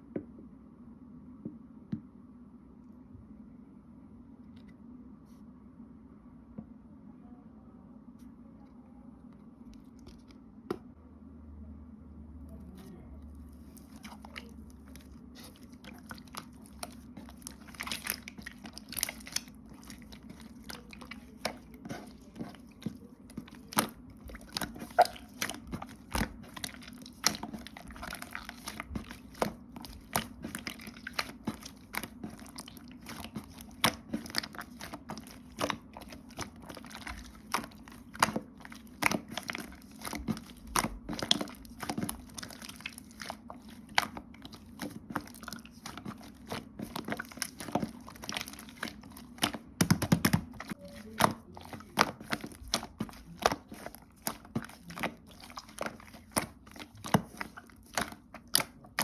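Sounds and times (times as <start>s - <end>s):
crunching and crinkling clicks: 13.6s - 59.0s.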